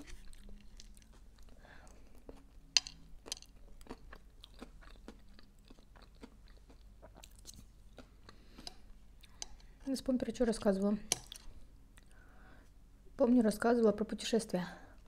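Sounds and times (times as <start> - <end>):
chewing and mouth clicks: 0.0 - 9.8.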